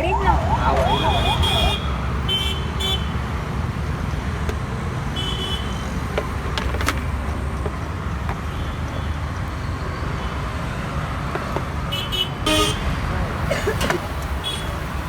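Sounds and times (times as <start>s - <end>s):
high horn beep: 0.0s - 1.9s
traffic rumble: 0.0s - 15.0s.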